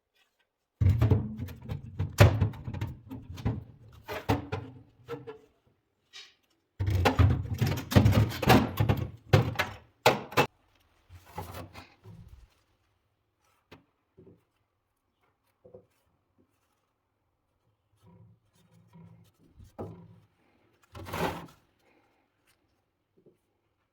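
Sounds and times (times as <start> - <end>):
loud knocks and clatter: 6.8 - 10.5.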